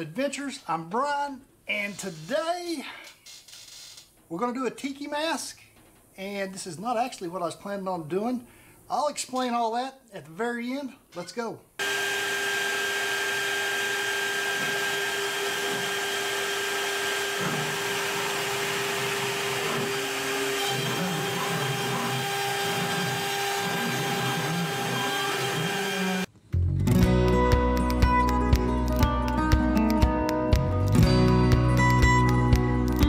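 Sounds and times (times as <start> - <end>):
bit cutting plywood: 11.8 - 26.3
router spindle high whine: 11.8 - 26.3.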